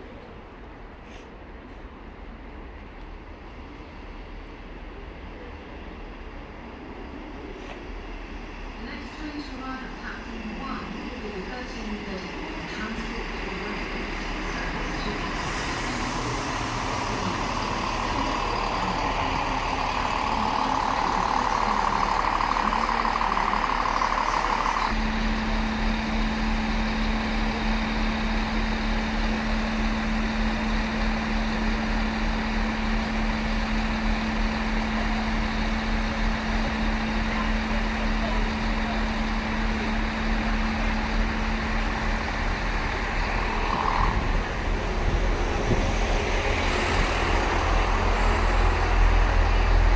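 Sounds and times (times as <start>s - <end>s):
diesel engine idling hum: 12.8s - 49.9s.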